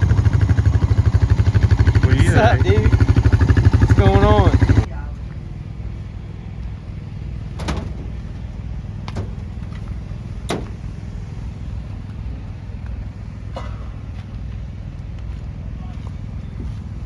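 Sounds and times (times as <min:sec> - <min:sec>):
engine running low rumble: 0:00.0 - 0:17.0.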